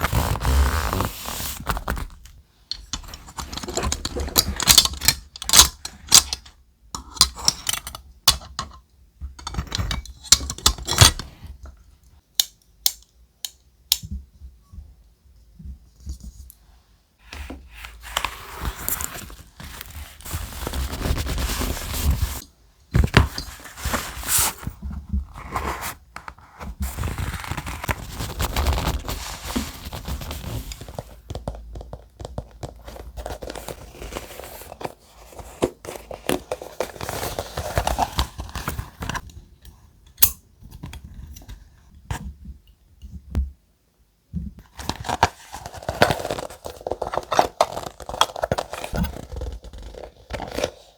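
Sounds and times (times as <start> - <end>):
paper rustling and crinkling: 0.0 - 6.2, 17.4 - 22.4, 23.0 - 39.3, 44.6 - 50.9.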